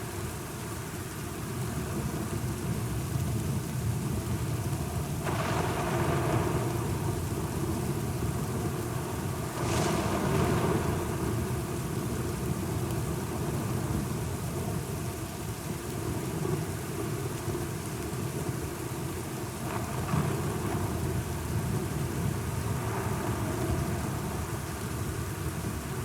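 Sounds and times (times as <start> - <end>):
steady rain: 0.0 - 26.0
thunder: 5.2 - 14.0, 19.6 - 25.8.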